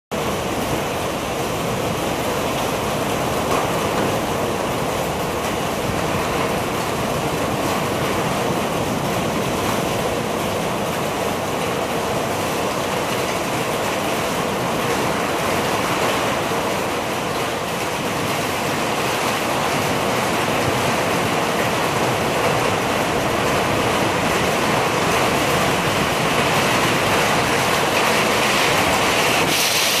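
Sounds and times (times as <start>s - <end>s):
heavy wind-driven rain: 0.1s - 30.0s.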